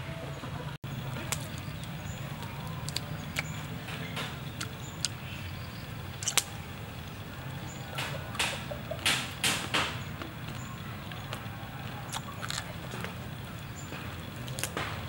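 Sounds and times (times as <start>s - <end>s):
sharp snap: 6.2s - 6.6s
person chewing crispy food: 10.4s - 13.7s.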